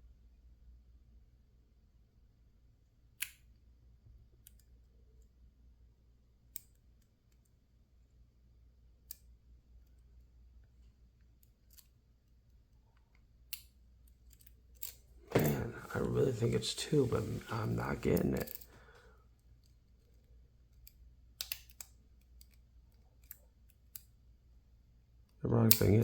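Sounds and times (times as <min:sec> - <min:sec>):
lock pick clicking in padlock: 0:20.8 - 0:22.6.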